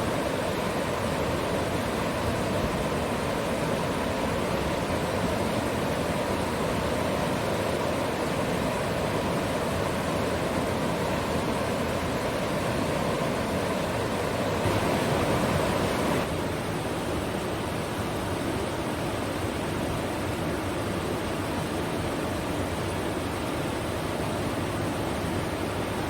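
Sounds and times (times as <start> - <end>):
river water rushing: 0.0 - 16.3.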